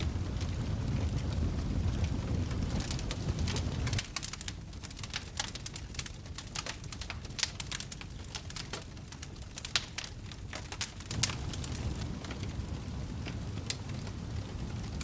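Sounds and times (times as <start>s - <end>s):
wood fire crackling: 0.0s - 15.0s
low rumble: 8.2s - 15.0s.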